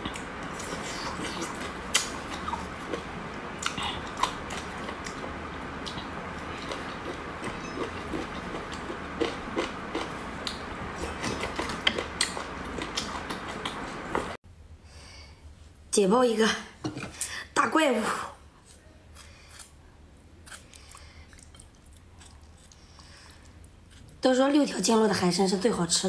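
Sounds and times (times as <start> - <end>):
wet chewing and crunching: 0.0 - 14.4, 20.4 - 24.2.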